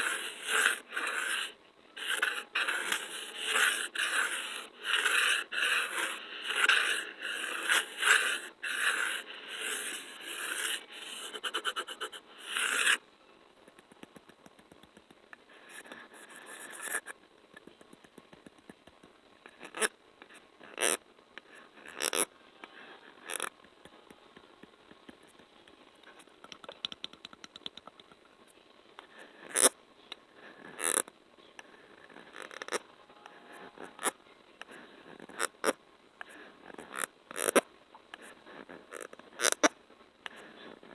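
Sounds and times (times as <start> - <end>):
sticky scraping and crackling: 0.0 - 13.0.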